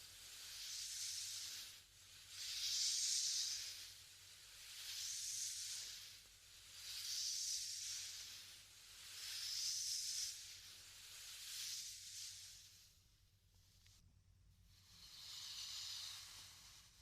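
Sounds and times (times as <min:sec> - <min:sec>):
soft breathy blowing: 0:14.6 - 0:17.0.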